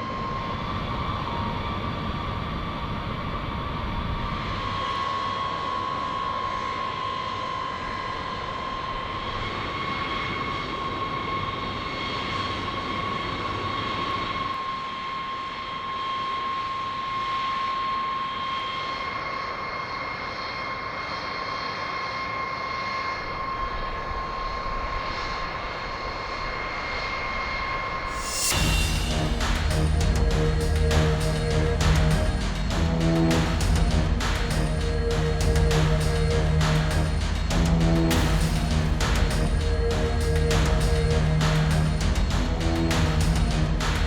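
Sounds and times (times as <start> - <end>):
aircraft engine whine: 0.0 - 44.0
rushing noise: 27.5 - 44.0.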